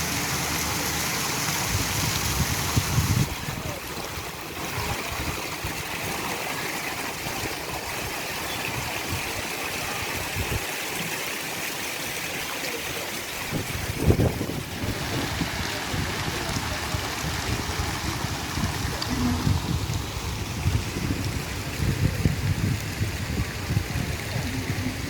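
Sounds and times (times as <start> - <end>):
stream water rushing and trickling: 0.0 - 25.0
low rumbling: 13.6 - 25.0.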